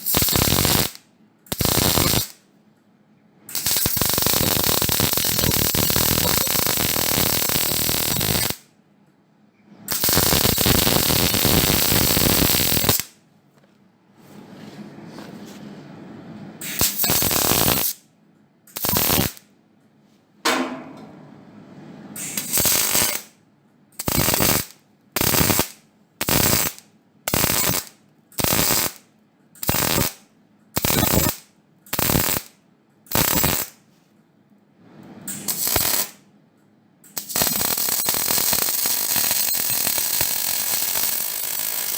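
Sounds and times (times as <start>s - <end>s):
mig welder crackling: 0.0s - 2.5s, 3.5s - 8.7s, 9.9s - 13.2s, 16.6s - 18.0s, 18.7s - 19.5s, 22.2s - 23.4s, 24.0s - 33.8s, 35.3s - 36.3s, 37.0s - 41.9s.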